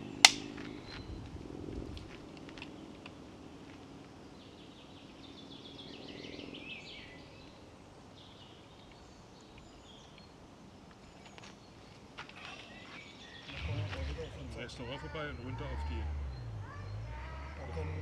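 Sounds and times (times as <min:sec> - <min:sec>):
songbirds singing: 0:00.0 - 0:18.0
faint low hum: 0:13.4 - 0:18.0.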